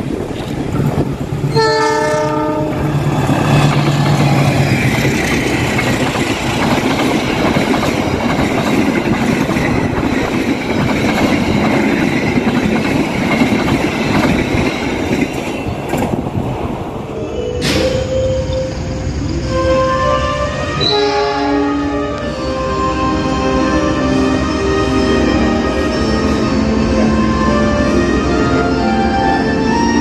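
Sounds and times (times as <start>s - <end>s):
wheels clattering on rails: 0.0s - 16.8s
locomotive engine humming: 0.0s - 30.0s
train horn blast: 1.5s - 2.9s, 19.5s - 29.7s.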